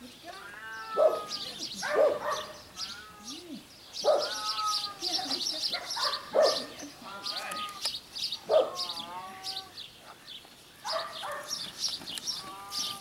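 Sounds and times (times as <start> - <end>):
small birds chirping: 0.0 - 13.0
drawn-out wavering bird call: 12.2 - 13.0.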